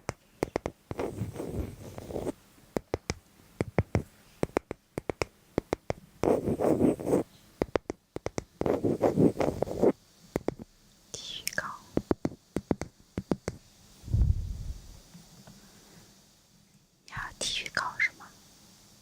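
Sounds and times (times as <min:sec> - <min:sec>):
scratchy rubbing: 0:00.4 - 0:02.4, 0:06.2 - 0:07.3, 0:08.6 - 0:10.0.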